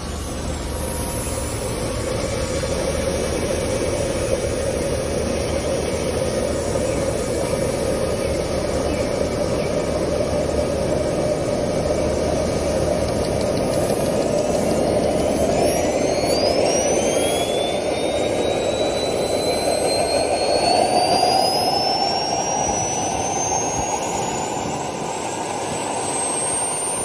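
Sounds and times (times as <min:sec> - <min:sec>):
electric motor whirring: 0:00.0 - 0:27.0.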